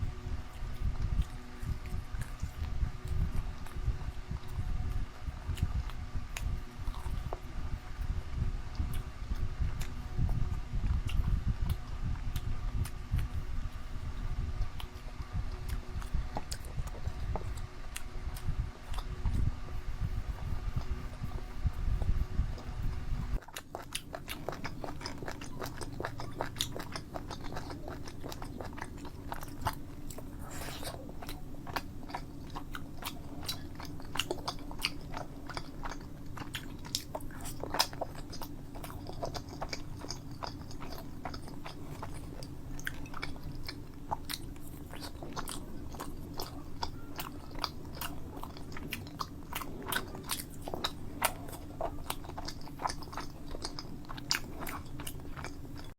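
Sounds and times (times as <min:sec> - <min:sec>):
chewing and biting food: 0:00.0 - 0:55.9.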